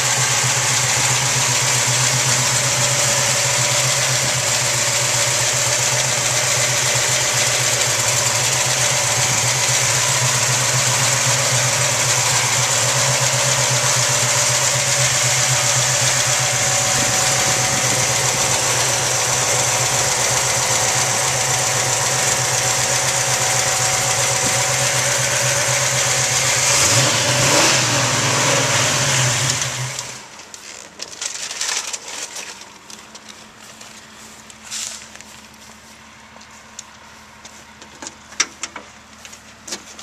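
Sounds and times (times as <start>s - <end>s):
car engine idling: 0.0s - 40.0s
small clicks and knocks: 37.8s - 40.0s.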